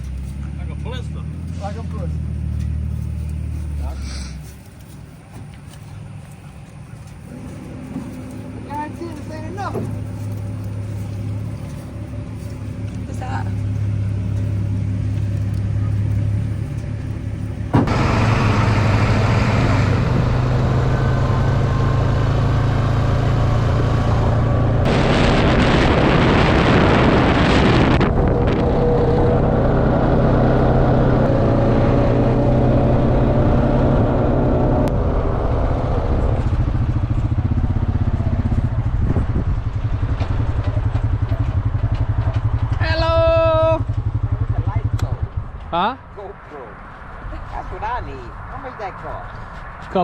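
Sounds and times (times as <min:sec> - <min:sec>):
vehicle engine running: 0:00.0 - 0:50.0
loud rushing noise: 0:17.7 - 0:30.2.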